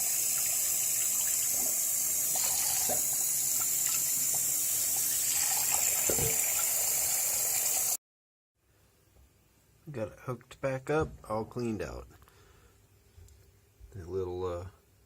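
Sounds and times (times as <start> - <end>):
water running: 0.0 - 8.0.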